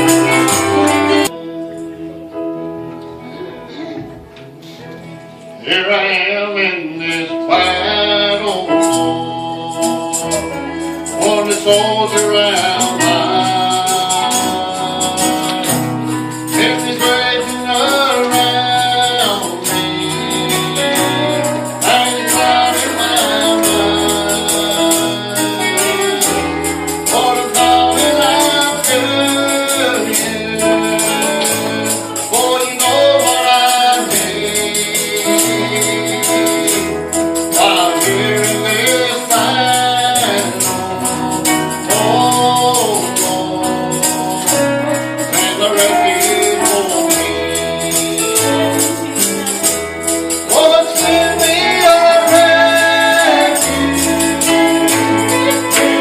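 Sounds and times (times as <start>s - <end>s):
tambourine beat: 0.0s - 1.4s, 8.6s - 56.0s
bass line: 0.0s - 2.3s
congregation singing gospel: 0.0s - 56.0s.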